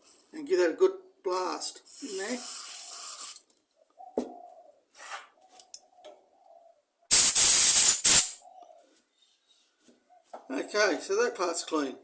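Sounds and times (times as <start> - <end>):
aerosol spray hissing: 2.0 - 3.4, 7.1 - 8.4.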